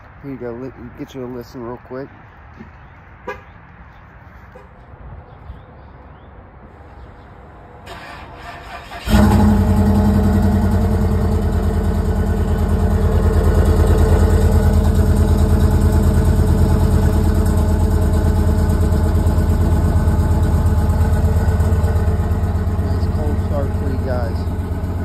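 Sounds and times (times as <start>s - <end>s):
car engine starting and idling: 7.8s - 25.0s.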